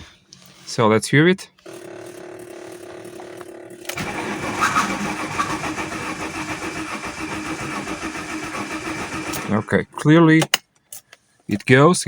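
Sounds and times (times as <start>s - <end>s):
car engine cranking on starter: 3.9s - 9.8s.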